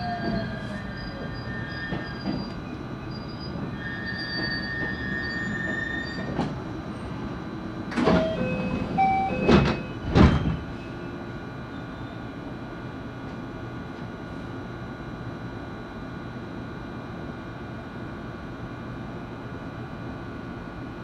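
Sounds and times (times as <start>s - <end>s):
wheel squeals: 0.0s - 6.5s
electric train rumble: 0.0s - 21.0s.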